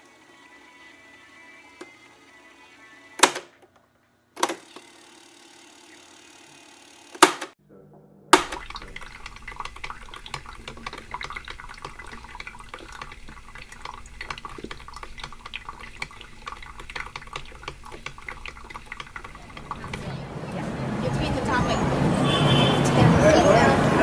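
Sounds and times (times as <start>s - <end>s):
sharp click: 3.2s - 3.5s, 7.1s - 7.6s
water trickling and dripping: 8.4s - 20.2s.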